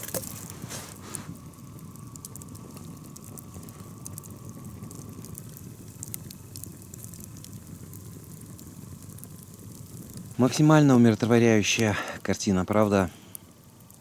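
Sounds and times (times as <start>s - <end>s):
kettle rushing: 0.0s - 1.5s
campfire crackling: 0.0s - 14.0s.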